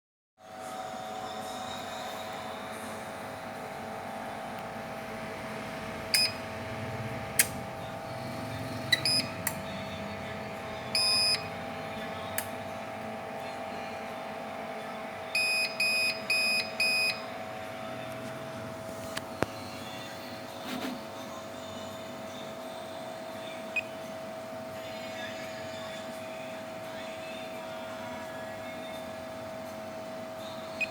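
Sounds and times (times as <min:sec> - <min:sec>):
electrical hum: 0:00.4 - 0:30.9
ups beeping: 0:06.1 - 0:06.5, 0:08.8 - 0:09.6, 0:10.9 - 0:11.5
sharp clicks: 0:07.4 - 0:07.6.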